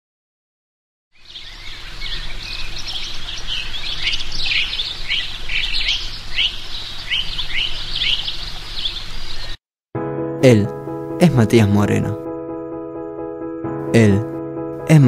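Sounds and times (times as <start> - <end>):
small birds chirping: 1.1 - 9.6.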